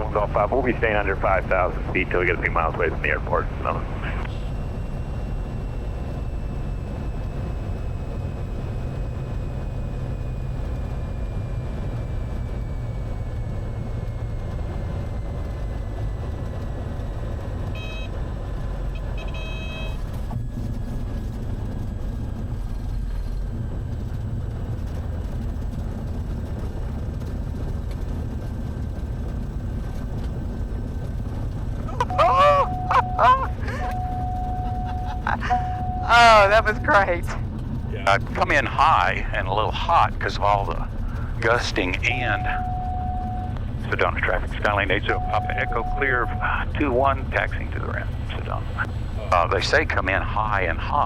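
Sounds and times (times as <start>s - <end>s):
aircraft engine and propeller drone: 0.0s - 51.0s
short electronic beeps: 17.8s - 18.2s, 19.0s - 20.1s, 32.0s - 37.1s, 42.0s - 43.6s, 44.7s - 46.5s.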